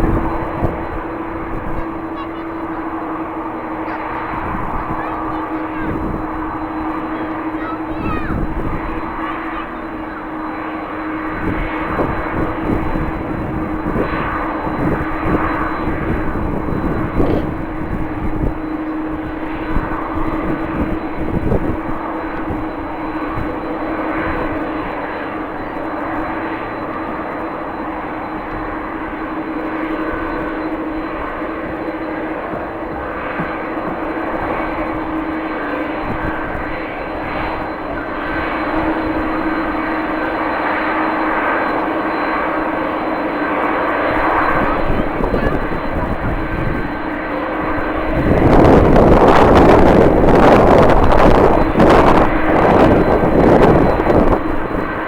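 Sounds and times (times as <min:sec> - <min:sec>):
jet engines humming: 0:00.0 - 0:55.0
wind buffeting microphone: 0:00.0 - 0:55.0.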